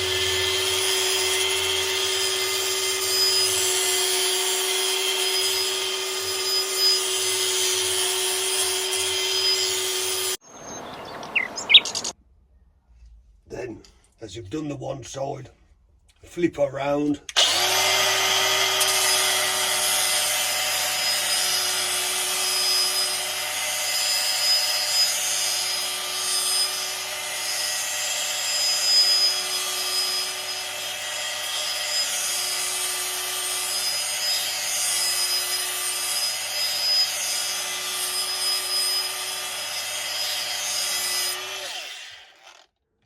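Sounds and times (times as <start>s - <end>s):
angle grinder grinding steel: 0.0s - 10.4s, 17.3s - 42.7s.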